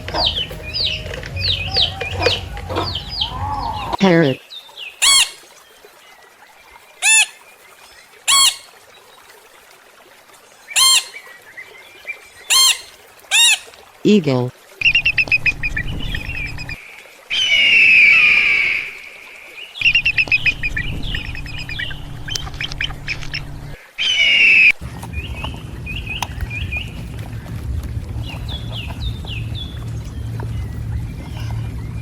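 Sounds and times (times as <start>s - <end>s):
eagle chattering calls: 0.0s - 4.0s, 5.0s - 5.4s, 7.0s - 7.4s, 8.3s - 8.7s, 10.8s - 11.3s, 12.4s - 13.8s, 19.8s - 32.0s
low rumble: 0.0s - 4.0s, 19.9s - 23.8s, 24.8s - 32.0s
eagle screams: 1.4s - 4.0s.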